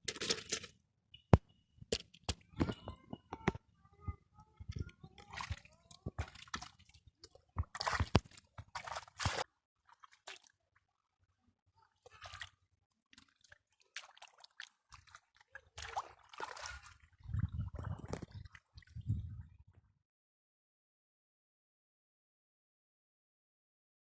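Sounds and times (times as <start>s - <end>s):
wet squelching and sloshing: 5.2s - 10.6s, 12.0s - 19.1s.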